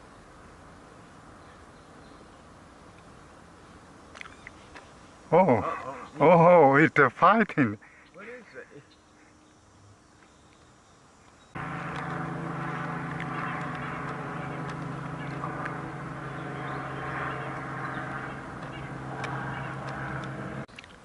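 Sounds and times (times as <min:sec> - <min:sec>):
mechanical drone: 0:11.6 - 0:20.7.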